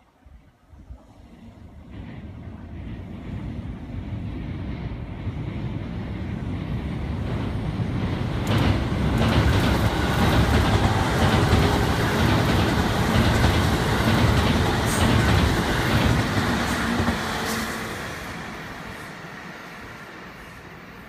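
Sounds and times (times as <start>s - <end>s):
electric train passing: 0.9s - 21.0s
wheels clacking over rail joints: 8.4s - 17.6s.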